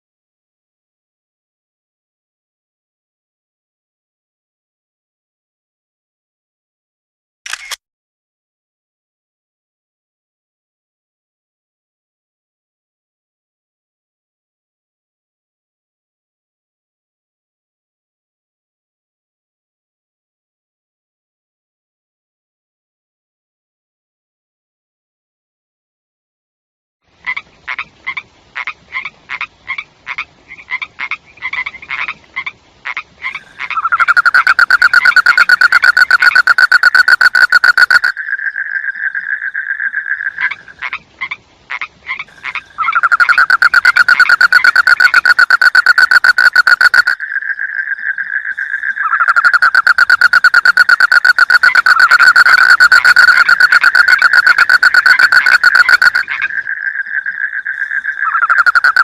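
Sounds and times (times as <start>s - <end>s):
frogs croaking: 27.2s - 59.0s.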